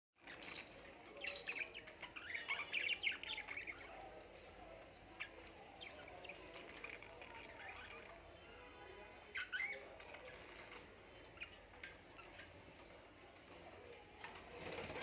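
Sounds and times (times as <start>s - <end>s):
birds chirping and squawking: 0.2s - 8.4s, 9.1s - 15.0s.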